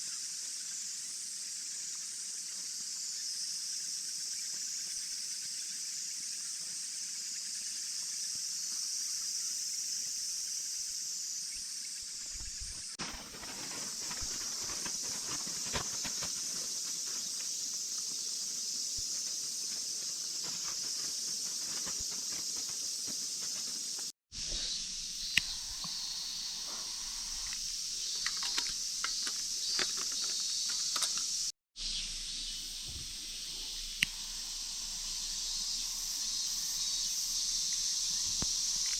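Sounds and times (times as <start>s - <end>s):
high-pitched insect chorus: 0.0s - 38.9s
camp gear clicks and knocks: 28.2s - 31.5s.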